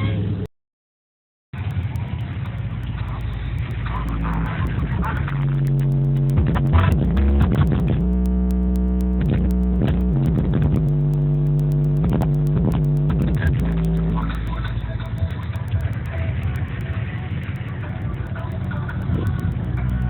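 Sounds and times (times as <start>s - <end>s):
car engine revving: 1.6s - 20.0s.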